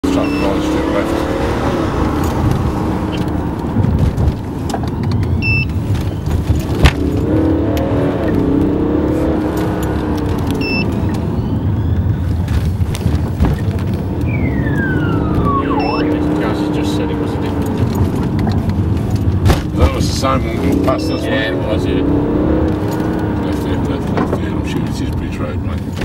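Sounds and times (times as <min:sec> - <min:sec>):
car engine and road noise: 0:00.0 - 0:26.0
short electronic beeps: 0:00.1 - 0:00.6, 0:05.4 - 0:05.8, 0:10.6 - 0:11.0, 0:14.2 - 0:16.2
falling tone: 0:14.1 - 0:17.1.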